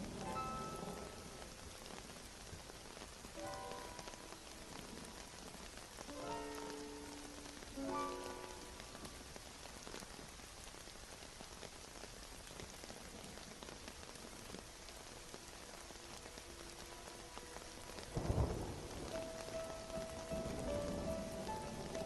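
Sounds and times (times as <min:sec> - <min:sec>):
thunder rumble: 0:00.0 - 0:05.8, 0:16.2 - 0:22.0
steady rain: 0:00.0 - 0:22.0.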